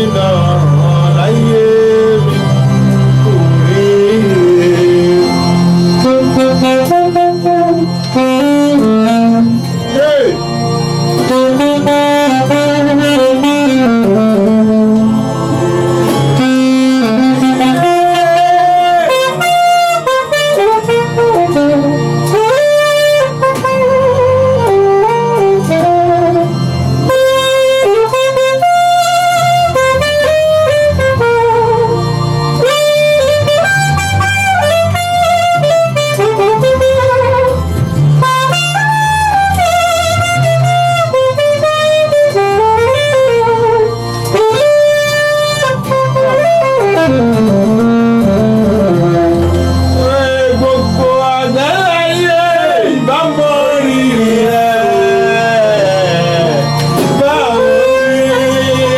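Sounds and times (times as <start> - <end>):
backing band: 0.0 - 58.9
bass line: 0.0 - 58.9
saxophone-like lead melody: 0.0 - 58.9.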